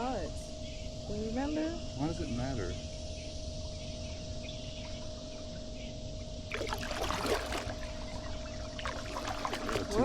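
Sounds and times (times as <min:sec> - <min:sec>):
paddle splashing in water: 0:06.5 - 0:10.0.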